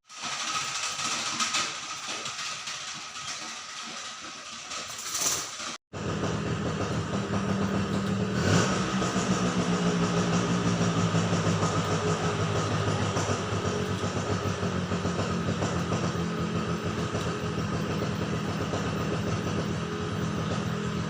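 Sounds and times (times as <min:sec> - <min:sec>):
low engine-like hum: 0:06.0 - 0:21.0.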